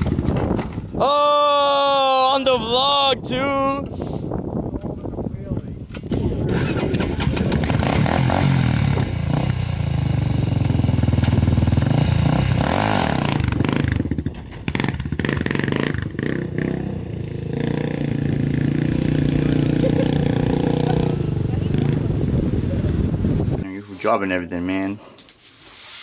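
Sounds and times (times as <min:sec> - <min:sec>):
vehicle engine revving: 0:06.2 - 0:23.6.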